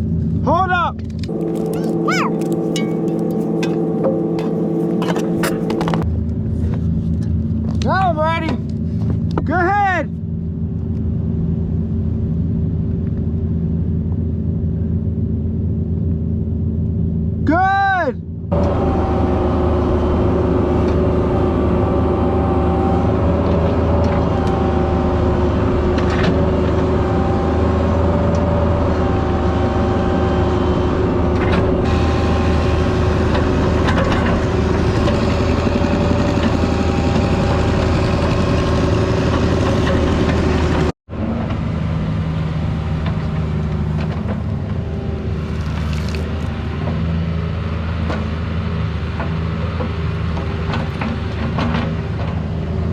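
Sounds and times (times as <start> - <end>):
constant whine: 0.0 - 9.6, 18.2 - 48.3
excavator diesel engine running: 1.3 - 6.1, 18.5 - 52.9.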